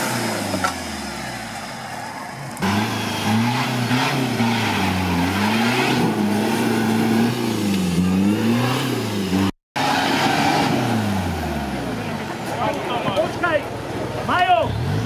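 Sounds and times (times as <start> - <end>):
engine revving hard: 2.6 - 12.0.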